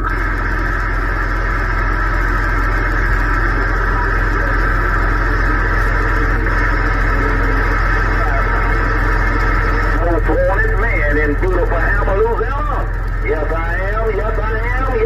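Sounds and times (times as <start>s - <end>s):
faint steady tones: 0.0s - 15.0s
radio static hiss: 0.0s - 15.0s.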